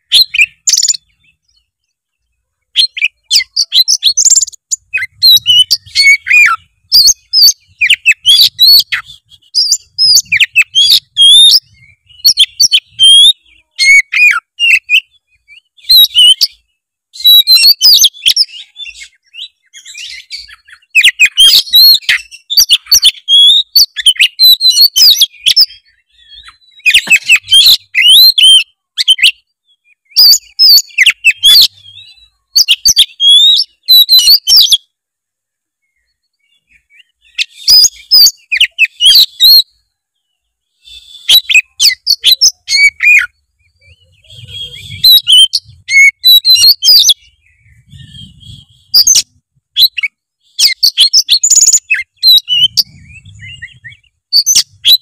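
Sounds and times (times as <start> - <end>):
magpie-robin singing: 0.0 - 34.9, 35.8 - 55.0.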